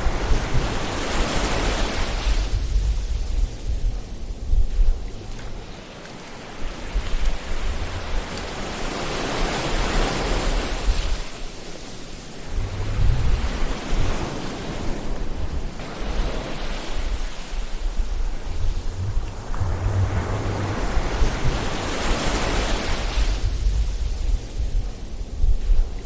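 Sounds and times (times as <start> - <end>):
ocean waves breaking: 0.0 - 2.9, 3.9 - 25.8.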